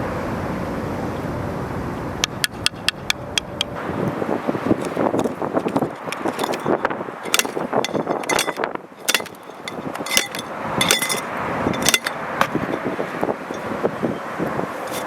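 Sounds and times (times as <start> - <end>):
scraping and rustling: 4.6 - 13.9, 14.7 - 15.0
sharp metallic clinks: 4.8 - 13.8.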